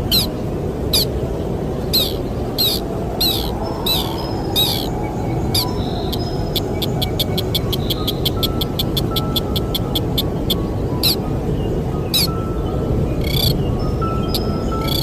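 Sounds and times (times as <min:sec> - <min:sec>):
bird sharp high call: 0:00.0 - 0:00.3, 0:02.0 - 0:04.9
wind noise: 0:00.0 - 0:15.0
thin steady high tones: 0:01.9 - 0:11.2
fast ticking: 0:05.6 - 0:11.2.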